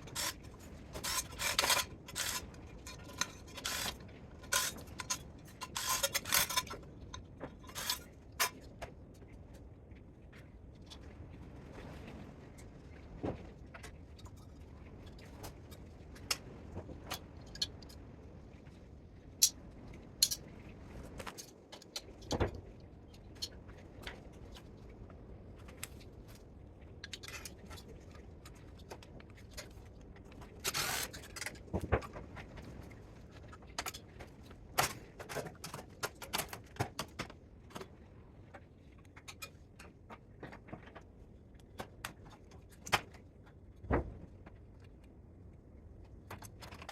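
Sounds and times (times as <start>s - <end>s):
metal scrape: 0.0s - 6.8s.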